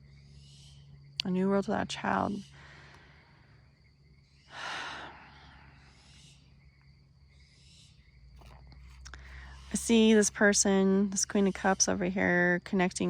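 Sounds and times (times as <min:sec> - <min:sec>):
faint low hum: 0:00.0 - 0:13.0
breathy sigh: 0:04.5 - 0:06.0.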